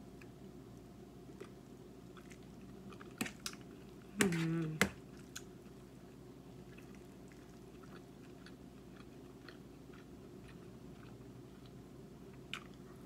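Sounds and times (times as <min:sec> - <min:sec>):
steady low hum: 0:00.0 - 0:13.0
chewing with mouth clicks: 0:01.4 - 0:04.4, 0:06.6 - 0:13.0.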